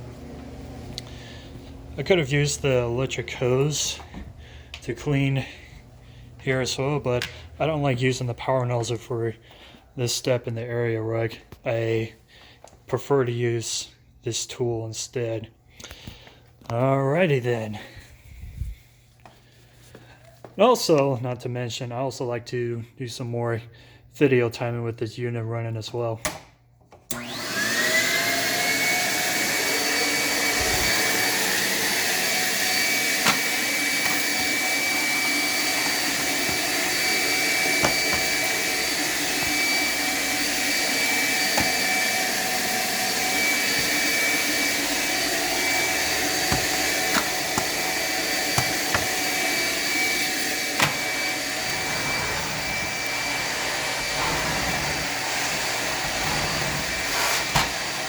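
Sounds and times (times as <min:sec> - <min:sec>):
vacuum high whine: 0:00.0 - 0:07.9, 0:27.1 - 0:58.0.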